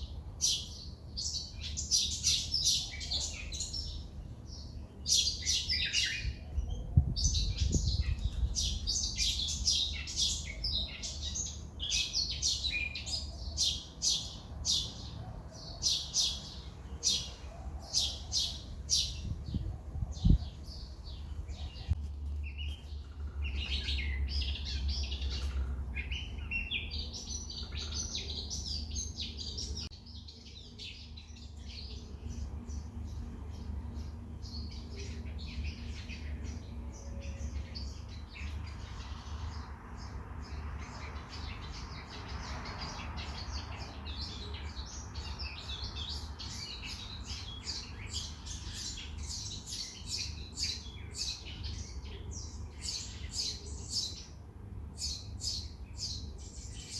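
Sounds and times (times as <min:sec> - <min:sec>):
birds chirping: 0:00.0 - 0:56.9.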